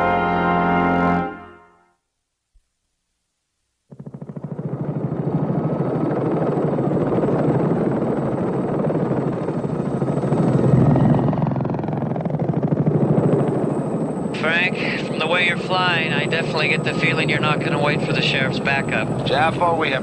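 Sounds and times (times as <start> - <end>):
helicopter rotor chopping: 3.9 - 20.0.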